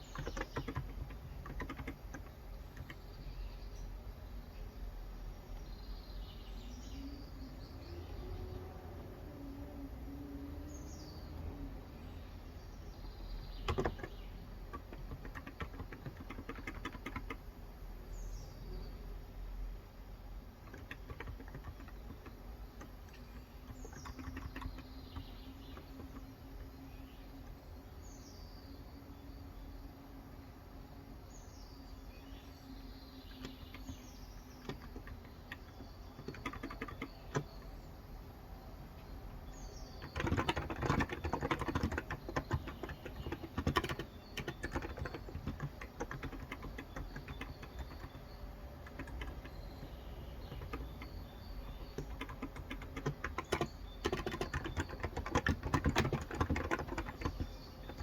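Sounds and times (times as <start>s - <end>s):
keyboard typing: 0.0s - 3.4s, 13.4s - 17.5s, 20.6s - 26.7s, 33.2s - 37.8s, 39.8s - 58.0s
birds chirping: 0.0s - 58.0s.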